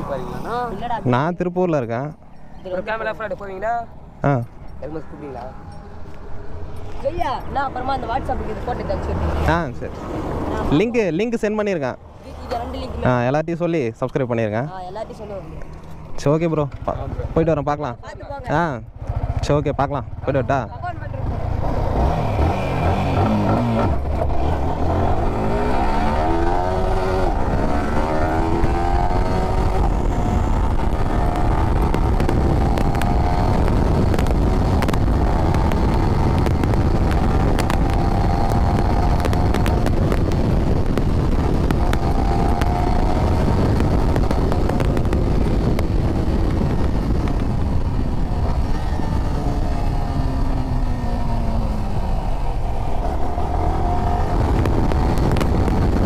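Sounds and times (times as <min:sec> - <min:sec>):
motorcycle engine accelerating: 0:18.7 - 0:56.0
wind rumble on microphone: 0:21.2 - 0:56.0.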